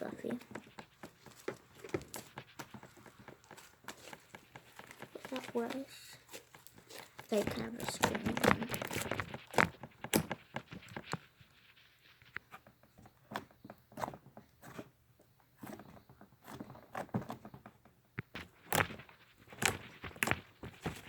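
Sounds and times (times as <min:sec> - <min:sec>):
slime squelching and crackling: 0:00.0 - 0:12.6, 0:18.2 - 0:21.0.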